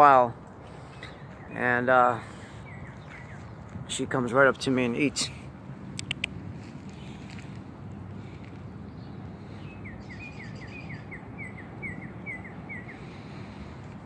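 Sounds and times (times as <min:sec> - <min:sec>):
low outdoor background noise: 0:00.0 - 0:14.0
bird singing down-slurred notes: 0:00.6 - 0:03.7, 0:08.8 - 0:13.1.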